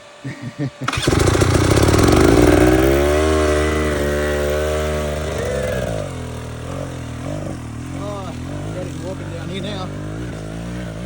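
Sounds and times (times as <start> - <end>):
small petrol engine running: 0.8 - 11.0.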